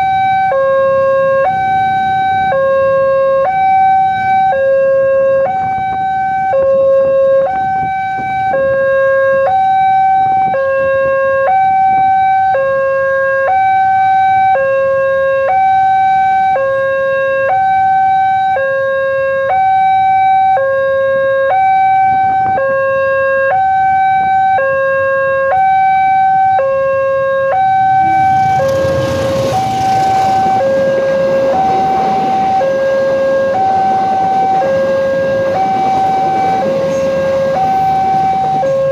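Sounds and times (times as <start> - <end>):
level crossing two-tone alarm: 0.0 - 38.9
train rumble: 27.7 - 38.9.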